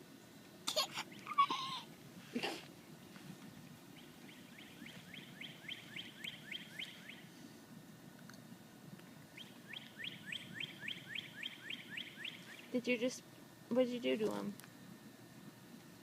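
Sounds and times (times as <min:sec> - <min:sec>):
songbird whistled notes: 0:04.0 - 0:07.2, 0:09.4 - 0:12.7.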